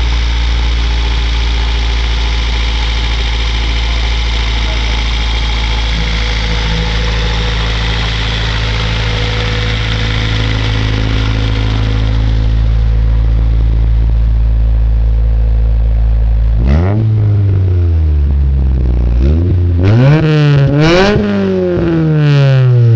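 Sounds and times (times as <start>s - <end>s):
car engine idling: 0.0s - 22.9s
engine revving sharply: 3.8s - 14.1s, 16.6s - 18.0s.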